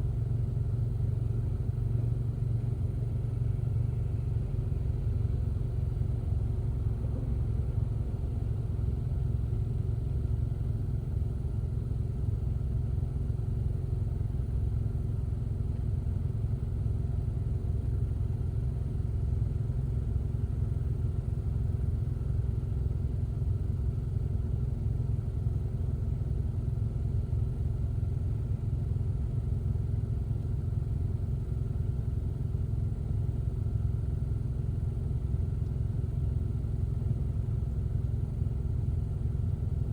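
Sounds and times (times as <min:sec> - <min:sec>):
car driving rumble: 0:00.0 - 0:14.6.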